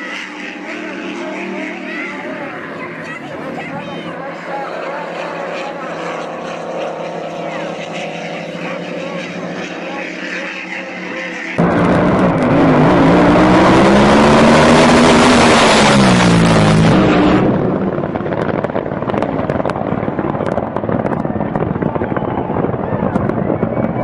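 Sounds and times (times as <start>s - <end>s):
powerboat engine revving: 0.0s - 20.1s
rushing noise: 11.6s - 24.0s.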